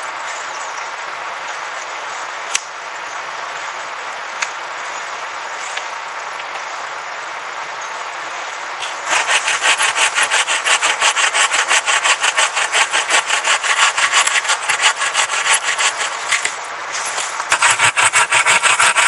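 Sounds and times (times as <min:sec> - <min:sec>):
steady background hiss: 0:00.0 - 0:19.0
hand saw cutting wood: 0:08.8 - 0:19.0.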